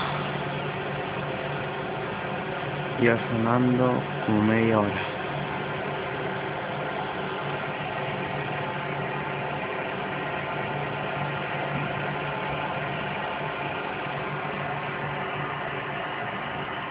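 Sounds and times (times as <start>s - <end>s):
steady low drone: 0.0s - 16.9s.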